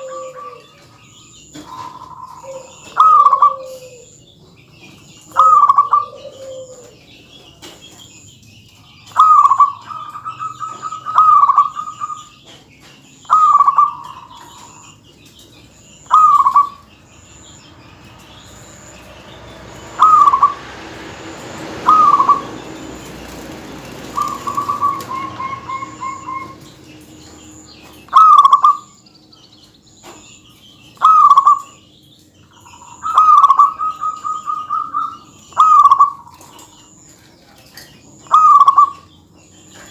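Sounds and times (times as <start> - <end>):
dove cooing: 0.0 - 4.2, 5.1 - 7.7, 9.1 - 12.5, 13.2 - 15.0, 15.8 - 17.7, 19.2 - 29.0, 31.0 - 31.8, 32.5 - 36.9, 38.2 - 39.1.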